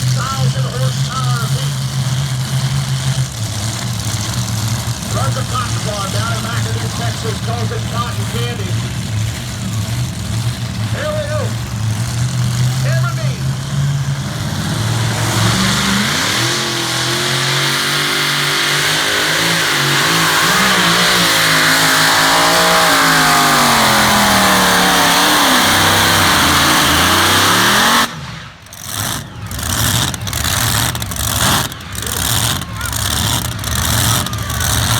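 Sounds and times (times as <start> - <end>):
vehicle engine at full power: 0.0 - 34.9.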